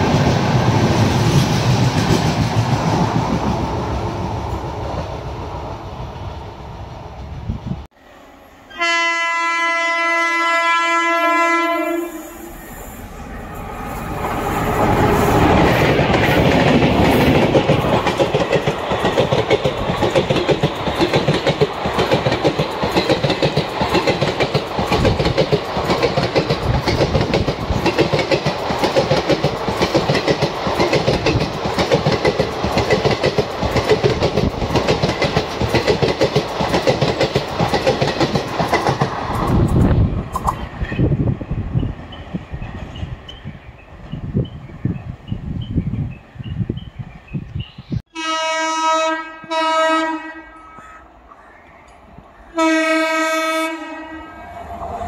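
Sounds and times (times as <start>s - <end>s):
locomotive horn blast: 8.6s - 12.9s, 48.1s - 50.8s, 52.6s - 54.7s
train wheels clattering over joints: 15.0s - 41.0s.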